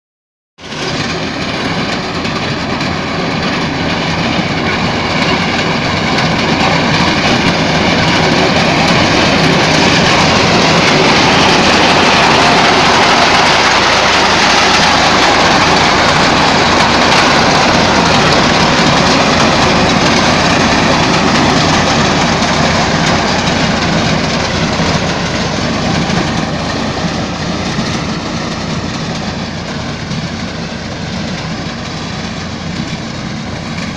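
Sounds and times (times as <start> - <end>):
tractor engine running: 0.6 - 33.9.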